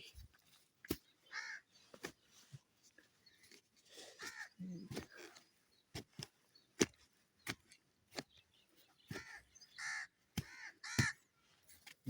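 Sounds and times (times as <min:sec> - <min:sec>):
crows cawing: 0:01.2 - 0:01.7, 0:04.2 - 0:04.7, 0:09.1 - 0:11.3.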